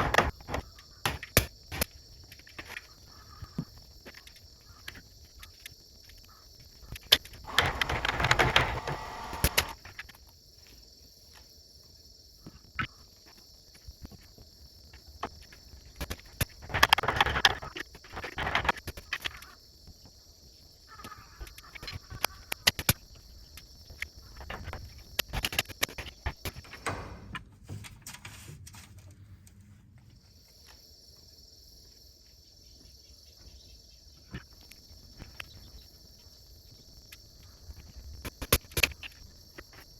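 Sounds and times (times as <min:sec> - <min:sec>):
crickets chirring: 0:00.0 - 0:27.4, 0:29.8 - 0:39.9
scraping and knocking on wood: 0:07.5 - 0:09.8.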